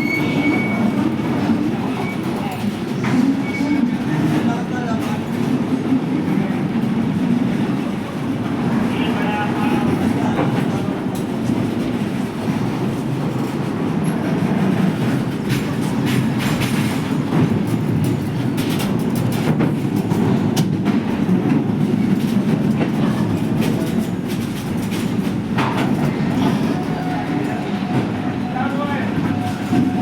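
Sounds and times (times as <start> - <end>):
train rumble: 0.0 - 30.0
wheels clacking over rail joints: 9.8 - 30.0.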